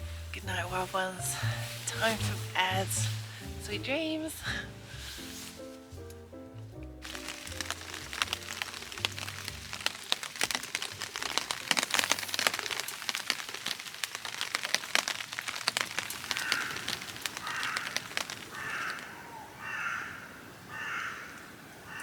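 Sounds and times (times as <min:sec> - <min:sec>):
raindrops ticking on a tarp: 0:00.0 - 0:20.2.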